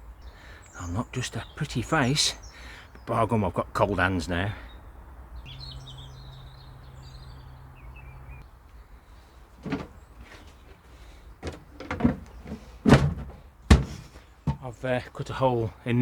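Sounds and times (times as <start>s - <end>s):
small birds chirping: 0.0s - 16.0s
knocks and thumps: 9.6s - 14.7s.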